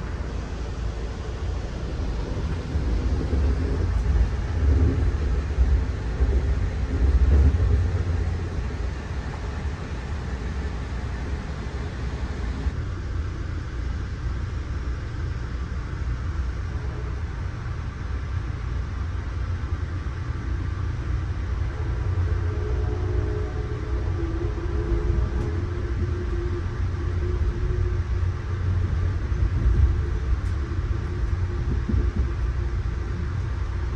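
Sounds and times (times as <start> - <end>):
train car rumbling on track: 0.0 - 12.9, 16.4 - 33.9
hiss of track noise: 0.0 - 13.0.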